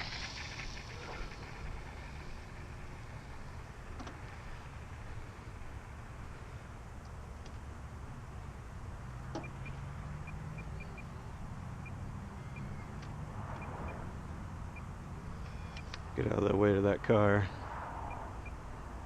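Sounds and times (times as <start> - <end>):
car engine running low: 0.0 - 19.0
faint high chirps: 9.4 - 11.1.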